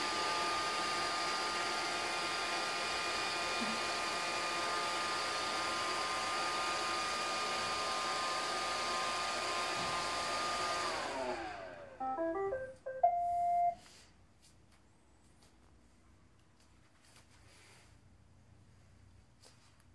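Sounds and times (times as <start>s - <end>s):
robot vacuum whirring: 0.0s - 11.9s
electronic beep tune: 12.0s - 13.8s.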